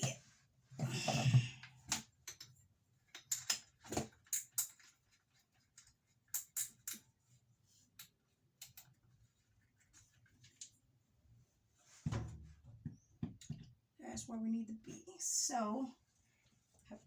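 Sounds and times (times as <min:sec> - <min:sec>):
tools clicking and tapping: 0:01.9 - 0:05.0, 0:05.7 - 0:07.1, 0:08.0 - 0:09.0.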